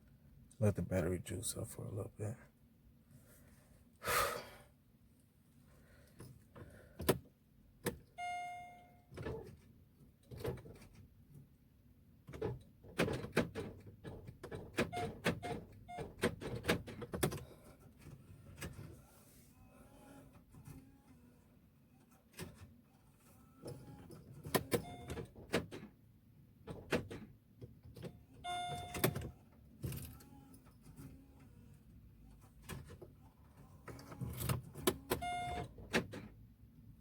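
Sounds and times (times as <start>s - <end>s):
knocks and clicks in a car: 6.2s - 8.4s, 12.2s - 18.8s, 24.2s - 26.0s, 26.6s - 30.1s, 33.9s - 36.4s.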